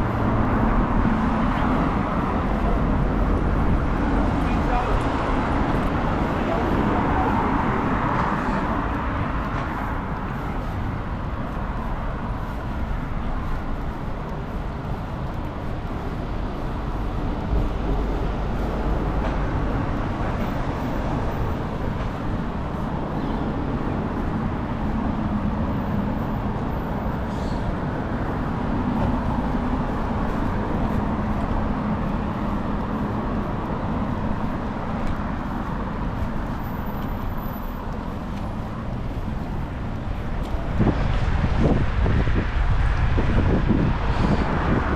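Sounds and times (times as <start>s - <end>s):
road traffic noise: 0.0s - 44.9s.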